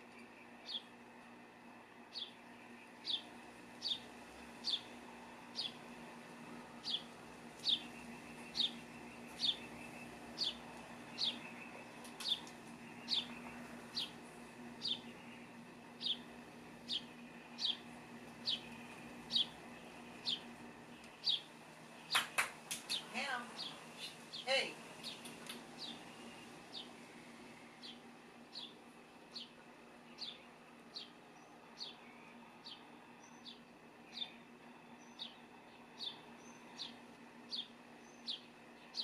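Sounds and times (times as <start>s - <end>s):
small bird chirping: 0.1s - 0.9s, 2.1s - 5.9s, 6.7s - 14.2s, 14.8s - 27.0s, 27.6s - 39.0s
sharp clicks: 22.1s - 23.0s.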